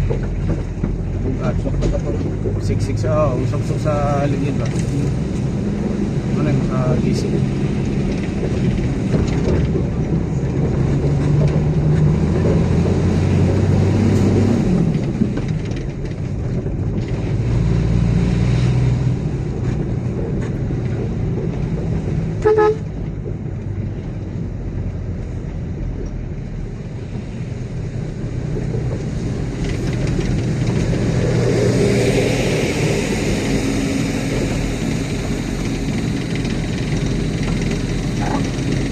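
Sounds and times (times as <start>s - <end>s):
heavy diesel engines running: 0.0s - 38.9s
horn toot: 22.4s - 22.9s.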